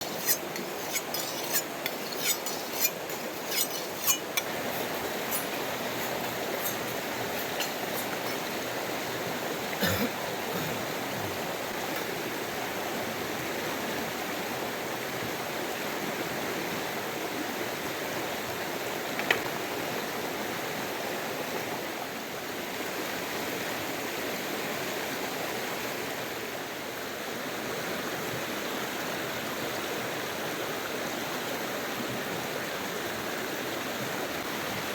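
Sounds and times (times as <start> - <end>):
river water rushing: 0.0 - 16.8.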